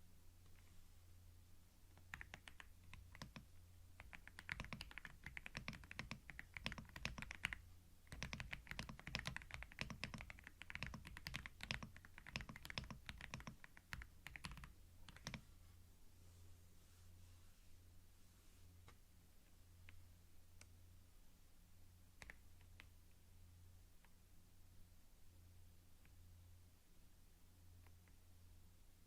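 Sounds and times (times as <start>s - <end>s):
computer keyboard typing: 1.9s - 15.4s.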